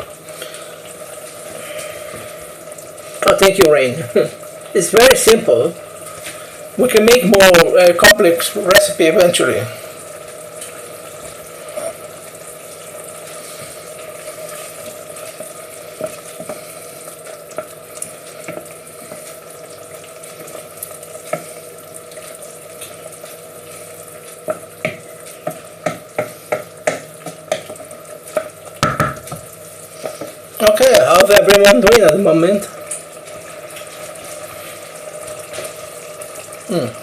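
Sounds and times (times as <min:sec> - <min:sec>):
food sizzling in a pan: 0:00.0 - 0:37.0
spoon knocking against pan: 0:24.5 - 0:29.5.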